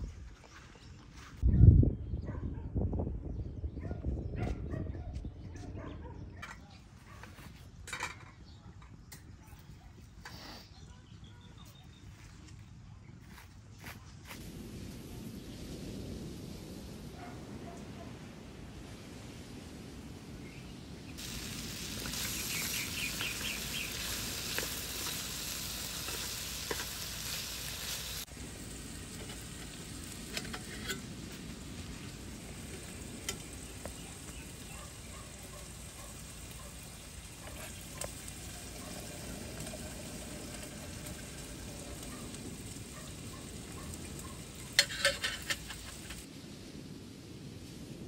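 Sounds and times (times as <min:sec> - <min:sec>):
meat and onions sizzling in pan: 0:20.4 - 0:46.3.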